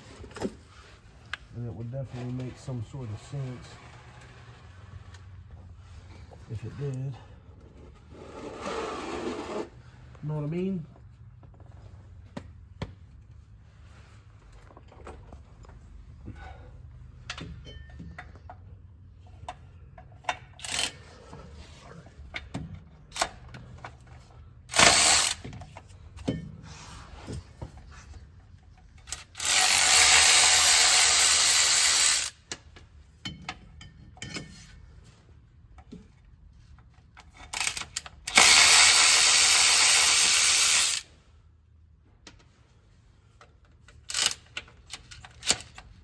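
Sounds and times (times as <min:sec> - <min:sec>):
power tool bursts: 0:24.7 - 0:25.4, 0:29.4 - 0:32.4, 0:37.6 - 0:41.1.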